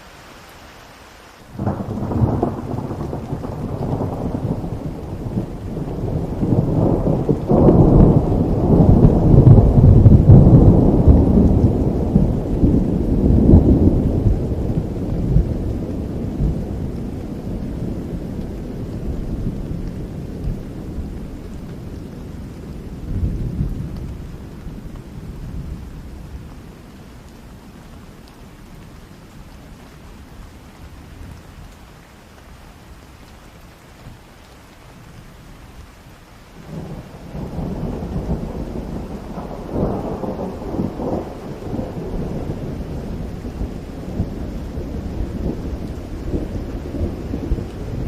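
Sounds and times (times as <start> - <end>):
steady rain: 0.0 - 48.0
rolling thunder: 1.6 - 26.8, 36.6 - 48.0.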